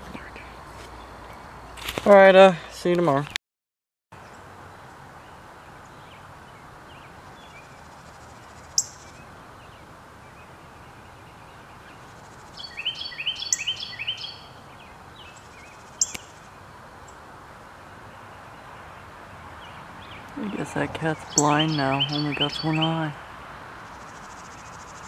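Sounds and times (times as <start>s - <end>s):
steady background hiss: 4.2s - 25.0s
songbird calling: 5.2s - 17.2s, 19.5s - 23.2s.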